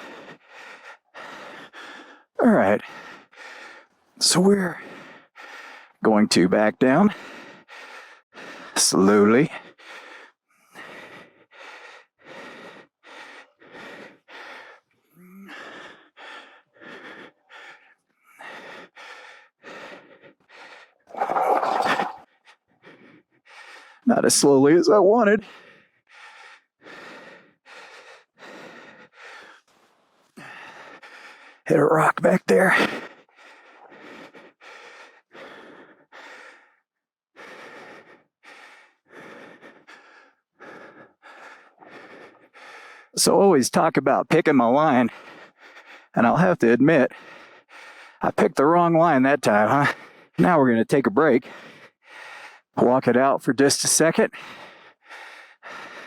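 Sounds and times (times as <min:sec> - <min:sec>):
man breathing hard: 0:00.0 - 0:06.0, 0:07.1 - 0:24.1, 0:25.3 - 0:43.2, 0:44.9 - 0:46.2, 0:47.0 - 0:48.2, 0:49.8 - 0:50.4, 0:51.4 - 0:52.8, 0:54.1 - 0:56.0.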